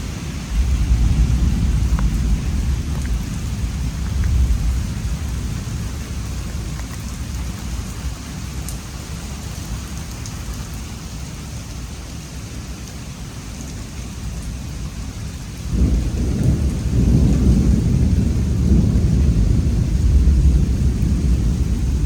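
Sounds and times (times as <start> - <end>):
thunder rumbling: 0.0 - 6.8, 15.6 - 22.0
steady rain: 0.0 - 22.0.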